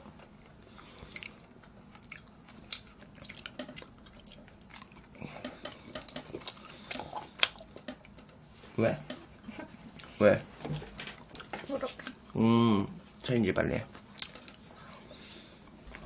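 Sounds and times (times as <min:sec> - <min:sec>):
person chewing food: 0:00.0 - 0:08.4, 0:13.9 - 0:16.0.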